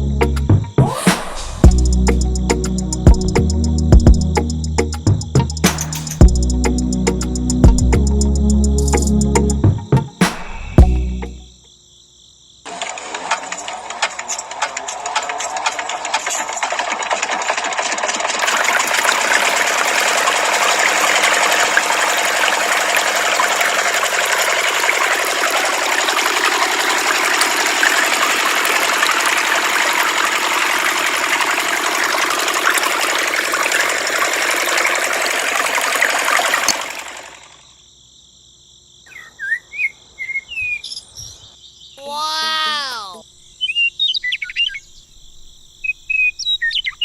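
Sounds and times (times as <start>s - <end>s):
small machine rattling whir: 12.7s - 37.6s
birds chirping: 39.1s - 47.0s.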